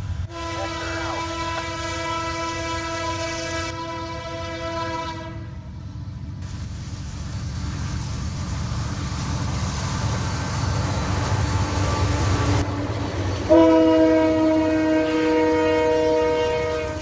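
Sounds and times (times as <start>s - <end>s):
locomotive rumbling: 0.0s - 17.0s
train air horn chord: 0.3s - 5.6s, 13.5s - 17.0s.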